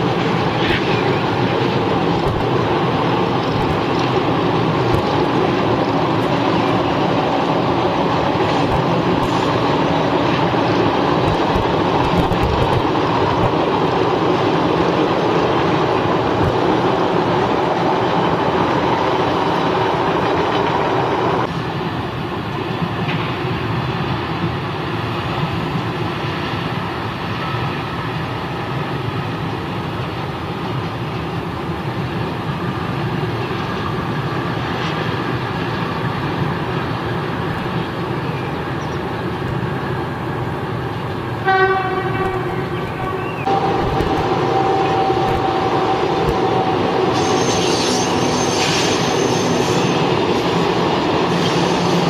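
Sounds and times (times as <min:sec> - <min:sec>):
train wheels clattering on rail joints: 0:00.0 - 0:21.5, 0:40.8 - 0:52.0.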